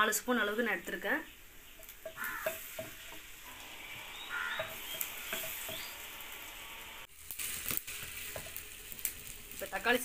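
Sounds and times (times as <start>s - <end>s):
onions sizzling in oil: 0.0s - 10.0s
wooden spatula scraping a pot: 1.7s - 6.1s, 7.4s - 9.4s.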